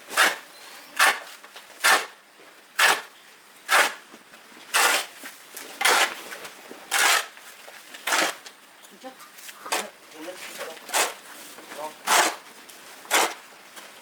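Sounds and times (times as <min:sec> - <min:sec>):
harsh scraping strokes: 0:06.9 - 0:07.3, 0:10.5 - 0:12.4.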